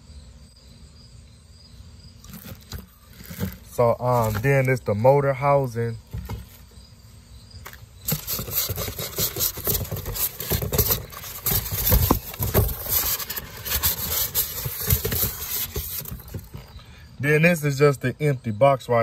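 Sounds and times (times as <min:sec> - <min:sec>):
cardboard box rubbing and scraping: 0:02.3 - 0:04.6, 0:08.0 - 0:16.8
knocks and bumps: 0:06.0 - 0:06.7, 0:07.7 - 0:16.8.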